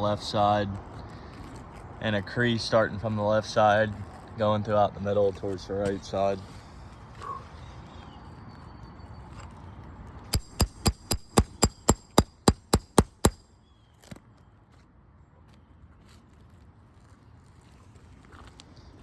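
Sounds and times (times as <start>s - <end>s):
roofing hammer striking: 10.4s - 13.4s.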